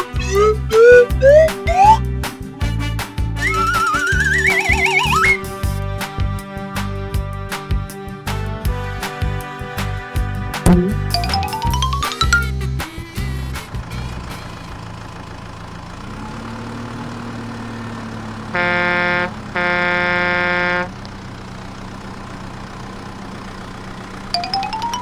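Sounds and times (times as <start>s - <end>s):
horn honking: 0.0s - 5.6s, 8.7s - 12.0s, 18.4s - 21.0s
vehicle engine running: 0.0s - 5.9s, 10.4s - 25.0s.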